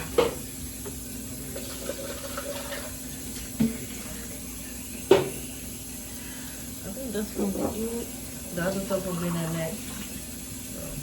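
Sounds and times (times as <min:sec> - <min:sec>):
tap running into sink: 0:01.6 - 0:04.0, 0:05.1 - 0:05.4.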